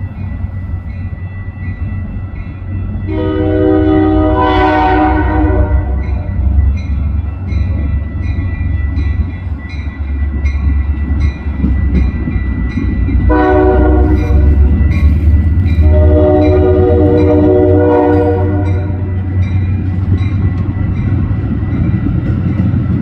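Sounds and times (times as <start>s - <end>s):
deep train rumble: 0.0s - 23.0s
train chime horn blasts: 3.0s - 6.8s, 13.1s - 19.6s.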